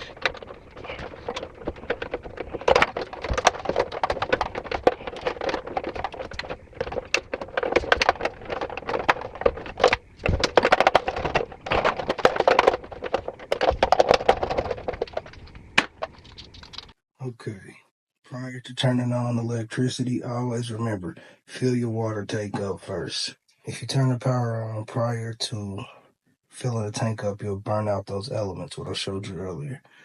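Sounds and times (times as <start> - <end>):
clicking and rattling of wires: 0.0 - 17.0.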